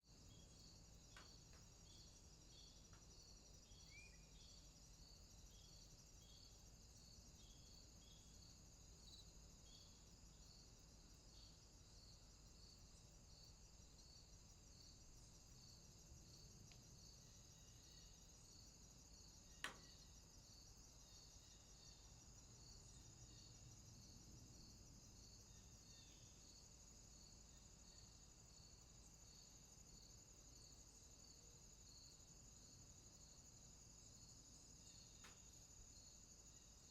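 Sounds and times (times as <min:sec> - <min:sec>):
night insects buzzing: 0:00.1 - 0:36.9
pulsing insect chirp: 0:00.1 - 0:36.9
short insect calls: 0:00.1 - 0:36.9.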